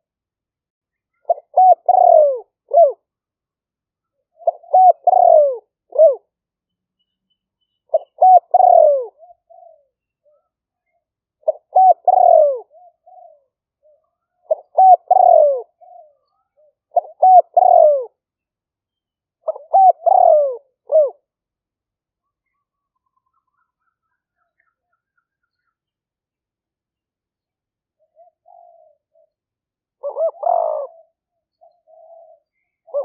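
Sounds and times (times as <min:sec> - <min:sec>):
dove cooing: 0:01.1 - 0:03.0, 0:04.3 - 0:06.3, 0:07.9 - 0:10.5, 0:11.4 - 0:18.2, 0:19.4 - 0:21.3, 0:28.0 - 0:29.4, 0:30.0 - 0:33.0.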